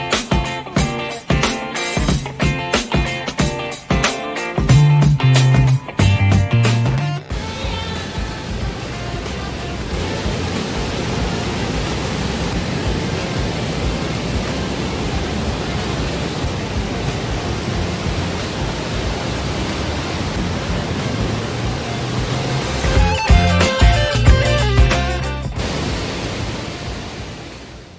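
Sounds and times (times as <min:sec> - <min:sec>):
water pouring down cascades: 0:07.3 - 0:27.9.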